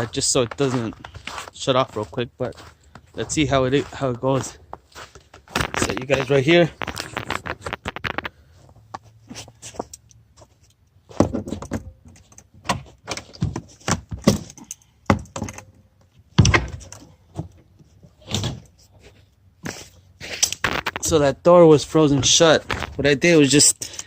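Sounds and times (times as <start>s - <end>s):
door banging and scraping: 11.1s - 17.5s, 18.1s - 18.7s.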